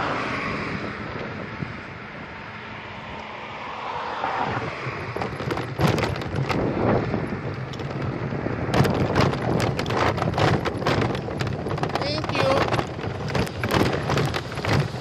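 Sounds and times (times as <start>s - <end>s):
wind rushing over microphone: 0.0s - 15.0s
crackling clicks and rattles: 5.0s - 15.0s.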